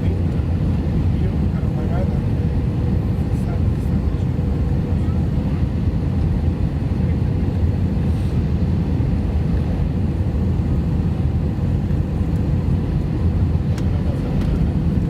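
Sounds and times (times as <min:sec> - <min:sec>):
jet engines rumbling in cabin: 0:00.0 - 0:15.0
airflow: 0:07.9 - 0:09.0.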